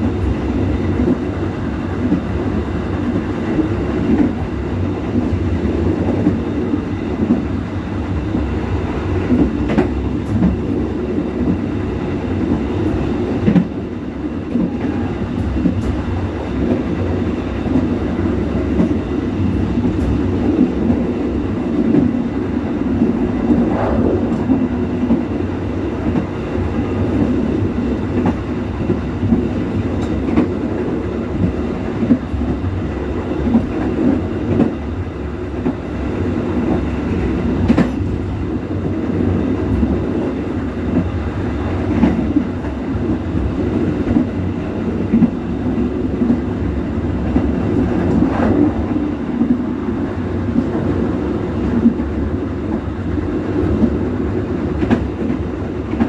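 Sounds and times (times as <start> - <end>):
train low rumble: 0.0 - 56.0.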